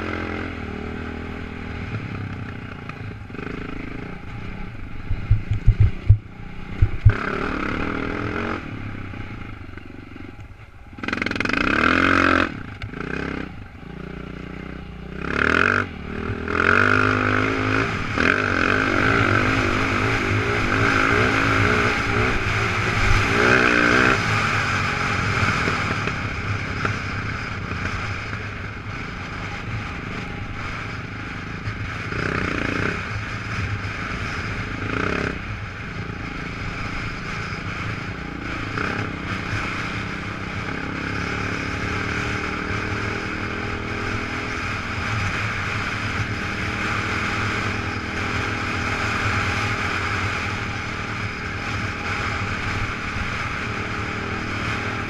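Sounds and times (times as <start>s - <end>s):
dirt bike engine revving: 0.0s - 10.1s, 10.9s - 30.9s.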